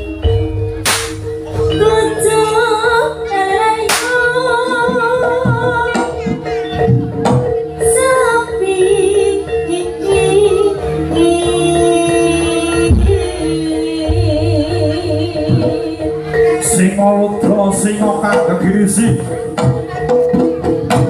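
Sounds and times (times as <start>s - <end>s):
person singing a wavering melody: 1.6s - 6.9s, 7.7s - 18.3s.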